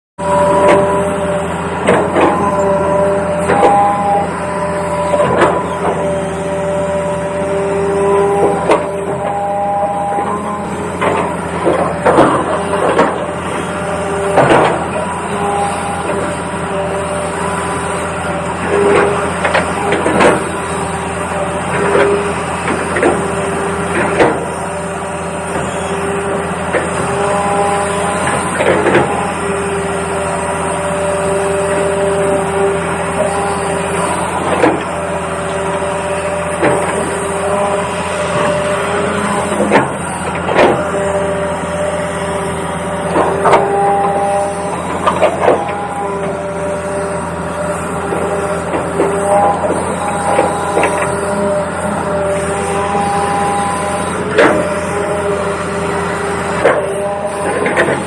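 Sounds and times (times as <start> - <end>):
higher motor tone: 0.2 - 24.6
sharp knocks and clatter: 1.8 - 2.4, 11.0 - 13.3, 14.2 - 15.0, 24.0 - 24.4, 39.5 - 40.8.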